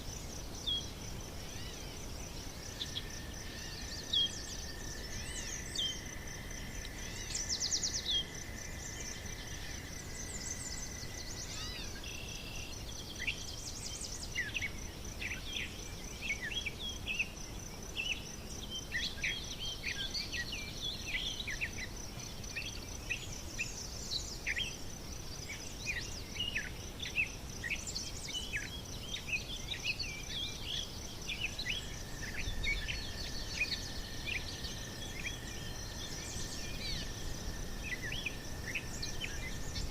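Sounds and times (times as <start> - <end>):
high insect trill: 0.0 - 39.9.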